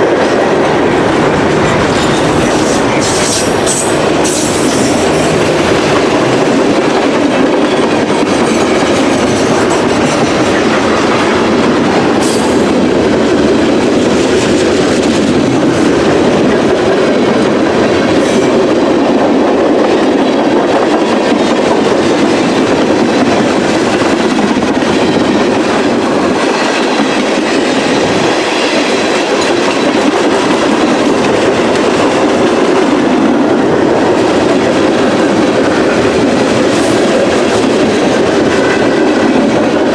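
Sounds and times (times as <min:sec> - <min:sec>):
wheels clacking over rail joints: 0:00.0 - 0:19.2
freight train rumbling: 0:00.0 - 0:39.9.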